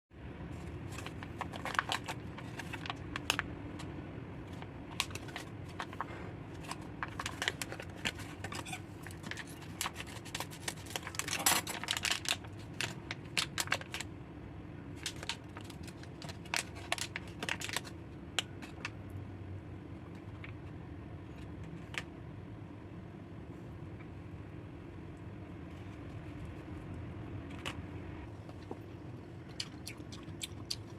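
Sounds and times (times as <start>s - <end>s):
steady low hum: 0.1s - 30.9s
plastic packaging crinkling: 0.6s - 14.1s, 14.9s - 19.0s.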